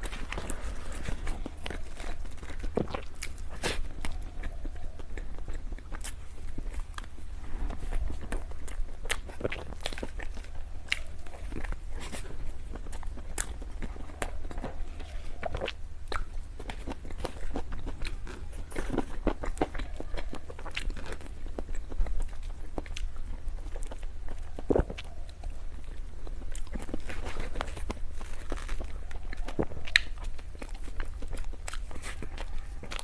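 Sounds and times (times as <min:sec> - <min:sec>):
moist clicks and small crunches: 0:00.0 - 0:33.0
person biting and chewing: 0:00.0 - 0:33.0
steady low hum: 0:00.0 - 0:33.0.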